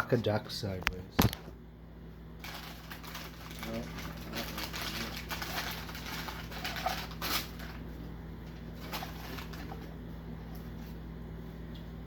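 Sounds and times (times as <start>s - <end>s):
low electrical hum: 0.0s - 12.0s
food packaging rustling: 2.4s - 11.0s.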